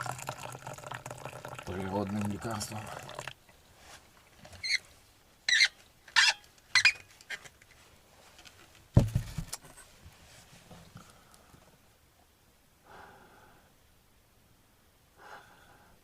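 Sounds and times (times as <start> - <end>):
short high squeaks: 4.5 - 4.9, 5.5 - 7.5
dull thump: 8.9 - 9.6.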